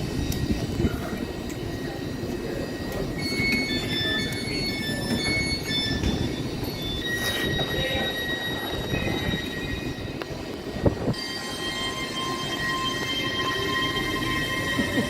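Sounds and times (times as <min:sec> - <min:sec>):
train rumbling on rails: 0:00.0 - 0:15.0
wheels squealing: 0:02.6 - 0:10.3, 0:11.1 - 0:15.0.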